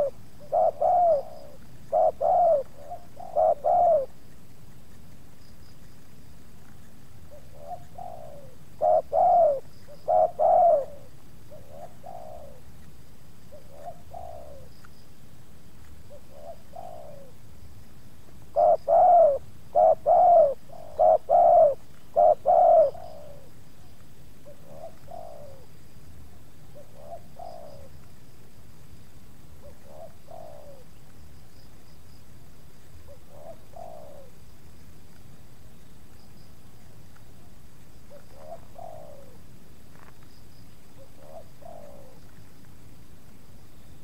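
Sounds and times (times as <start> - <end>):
doves cooing: 0.0 - 4.2, 7.3 - 12.7, 13.5 - 14.7, 16.1 - 17.5, 18.5 - 25.8, 26.6 - 28.1, 29.6 - 31.0, 33.0 - 34.4, 38.0 - 40.2, 40.9 - 42.5.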